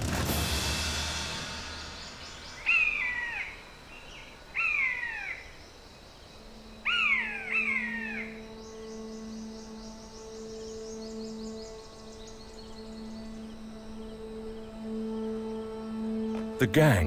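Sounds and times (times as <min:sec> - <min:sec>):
low musical drone: 0:00.0 - 0:17.0
bird whistled calls: 0:02.2 - 0:05.5, 0:06.8 - 0:09.5.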